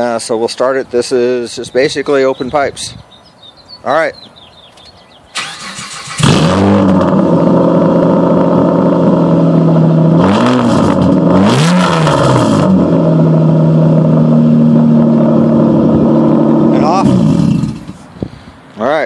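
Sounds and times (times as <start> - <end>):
car engine starting and revving: 5.3 - 18.1.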